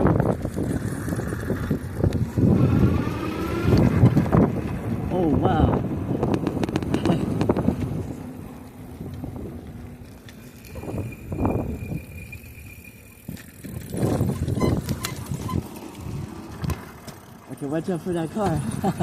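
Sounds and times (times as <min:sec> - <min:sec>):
tyres and air rushing: 0:00.0 - 0:17.5
faint high whine: 0:09.7 - 0:13.9.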